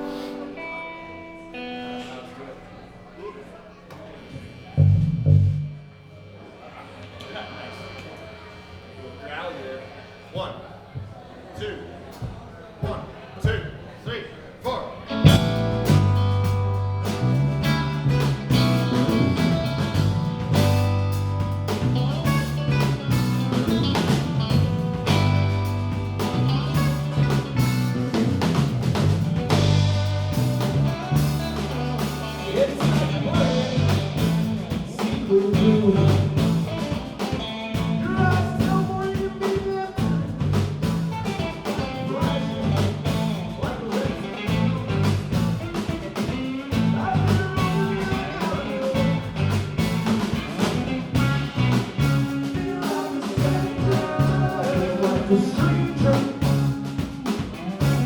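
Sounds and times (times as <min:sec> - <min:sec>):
live band playing: 0:00.0 - 0:02.1, 0:04.3 - 0:05.9, 0:15.1 - 0:58.0
guitar lines: 0:00.0 - 0:10.2, 0:14.9 - 0:58.0
drum kit: 0:04.2 - 0:06.0, 0:15.1 - 0:58.0
bass line: 0:04.3 - 0:06.3, 0:15.1 - 0:58.0.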